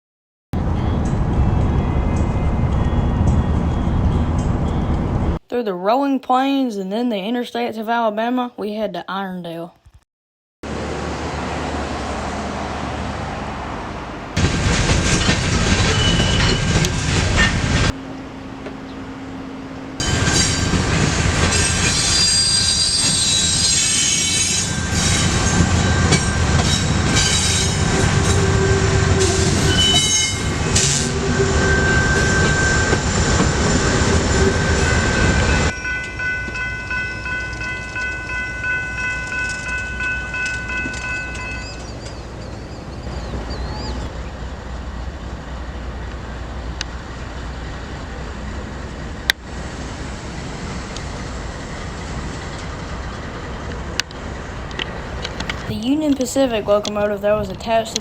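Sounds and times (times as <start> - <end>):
freight train rolling on rails: 0.6 - 5.4, 10.7 - 58.0
wheel squeal: 15.2 - 17.6, 20.0 - 36.2, 39.3 - 44.3.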